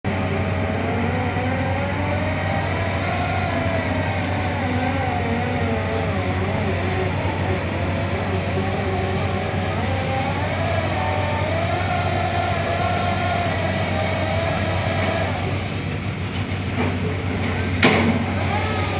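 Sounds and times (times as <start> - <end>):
drilling rig diesel engine drone: 0.0 - 18.9
wavering machine whine: 0.1 - 18.9.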